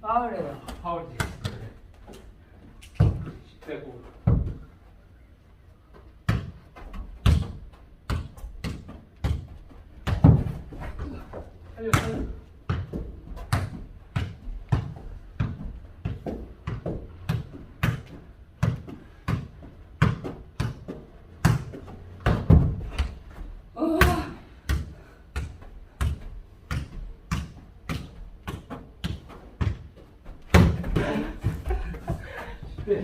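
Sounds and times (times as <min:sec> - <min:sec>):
football kicked and bouncing: 0:02.9 - 0:03.4, 0:04.2 - 0:04.7, 0:06.2 - 0:33.0
person shouting: 0:23.8 - 0:24.5.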